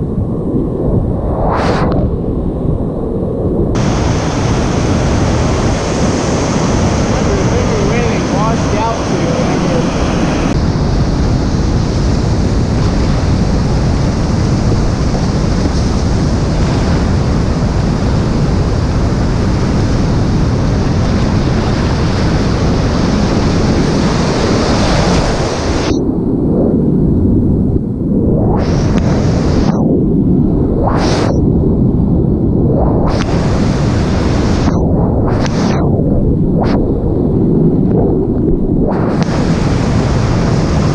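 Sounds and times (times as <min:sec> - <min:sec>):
wind buffeting microphone: 0:00.0 - 0:40.9
whitewater rushing: 0:03.8 - 0:10.6.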